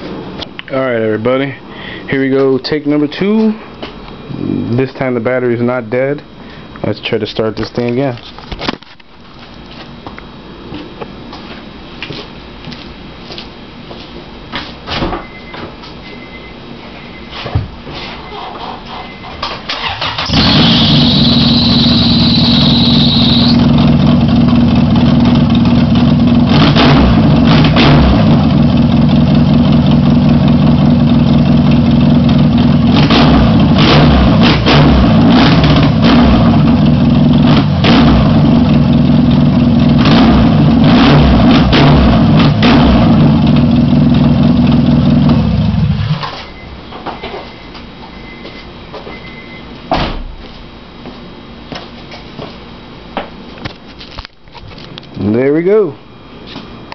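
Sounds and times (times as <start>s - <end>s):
high whine: 4.0s - 7.2s, 20.2s - 49.9s
engine cranking: 18.3s - 23.6s
car engine running loudly: 20.0s - 46.2s.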